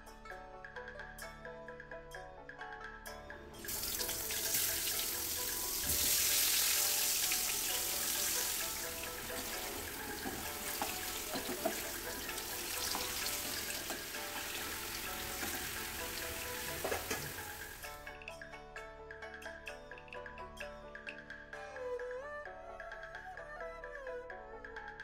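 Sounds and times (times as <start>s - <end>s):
background music: 0.0s - 25.0s
potatoes sizzling in hot oil: 3.6s - 17.9s.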